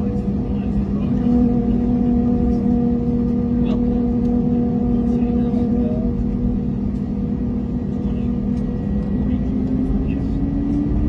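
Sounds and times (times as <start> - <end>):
jet engines humming in cabin: 0.0 - 11.0.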